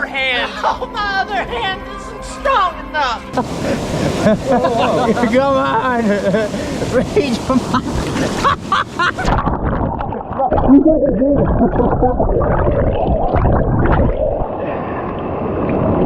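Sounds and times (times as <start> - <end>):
water churning underwater: 6.3 - 16.0.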